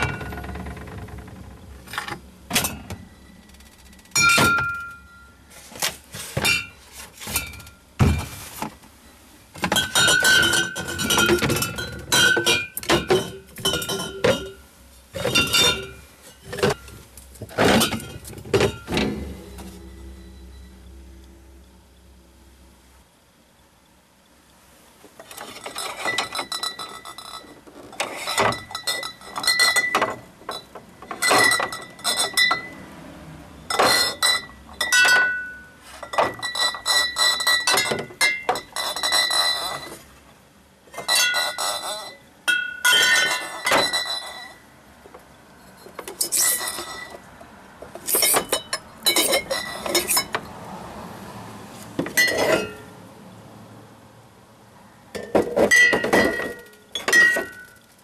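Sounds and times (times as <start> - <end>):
glass bottles clinking: 4.1 - 5.4, 6.4 - 8.3, 9.6 - 20.7, 25.3 - 32.8, 33.7 - 40.0, 40.9 - 44.6, 48.0 - 50.4, 52.0 - 52.9, 55.2 - 57.9.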